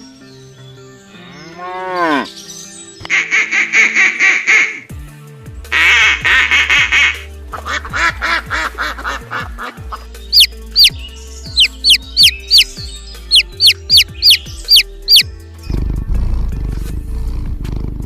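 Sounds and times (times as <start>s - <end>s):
background music: 0.0s - 18.0s
quacking bird calls: 3.1s - 4.9s, 5.7s - 15.2s
sharp downward bird chirps: 10.2s - 15.3s.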